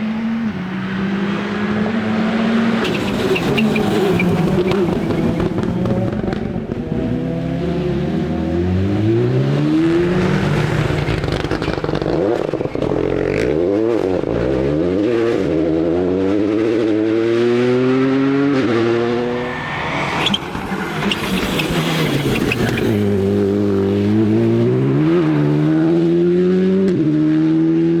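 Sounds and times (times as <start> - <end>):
rally car engine accelerating: 0.0 - 28.0
short sharp sound: 18.9 - 23.3.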